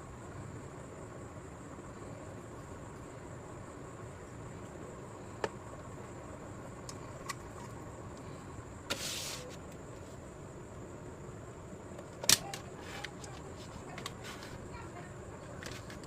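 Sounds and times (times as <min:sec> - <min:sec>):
background hiss: 0:00.0 - 0:16.0
rustle or scrape: 0:08.9 - 0:10.2, 0:12.8 - 0:14.6.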